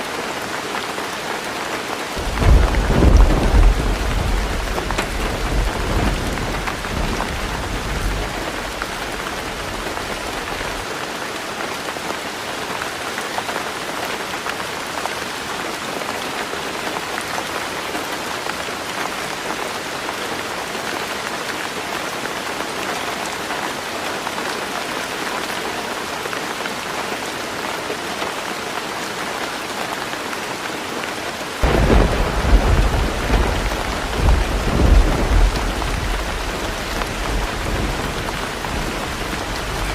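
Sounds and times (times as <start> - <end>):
heavy rain on a tin roof: 0.0 - 39.9
thunder rumble: 2.2 - 10.8, 31.6 - 39.9.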